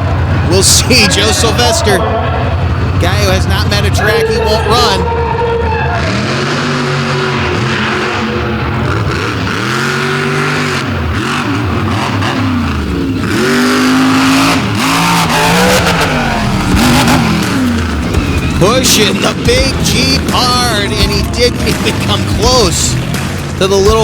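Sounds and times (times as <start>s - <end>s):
monster truck engine revving: 0.0s - 24.0s.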